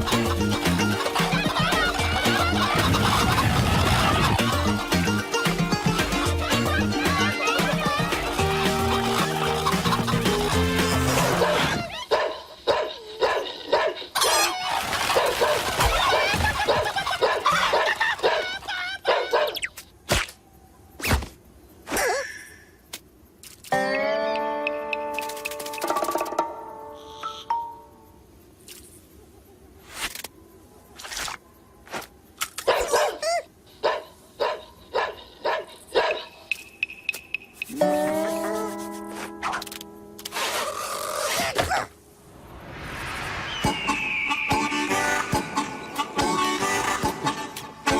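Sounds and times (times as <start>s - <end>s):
cartoon dog-like yapping: 11.0s - 19.7s, 32.6s - 36.3s
high warbling squeal: 42.2s - 46.2s
brief gliding call: 43.4s - 47.4s.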